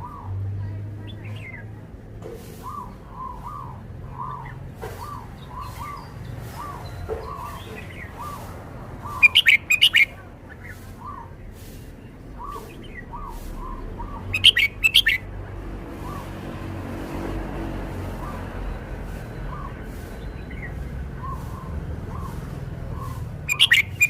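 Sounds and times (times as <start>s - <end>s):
bulbul singing song phrases: 0.0s - 24.0s
soft short bird call notes: 9.1s - 11.2s, 12.4s - 15.2s, 23.0s - 24.0s.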